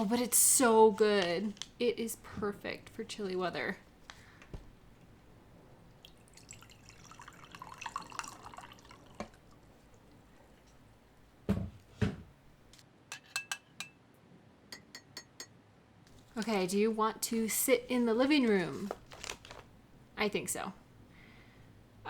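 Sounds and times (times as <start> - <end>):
hot water poured into mug: 6.0 - 9.7
spoon clinking against mug: 13.1 - 14.0.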